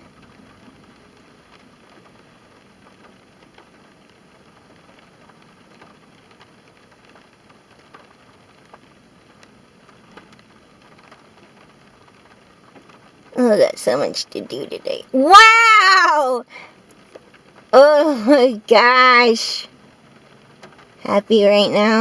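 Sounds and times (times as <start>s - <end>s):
light rain falling: 0.0s - 22.0s
raindrops ticking: 0.1s - 22.0s.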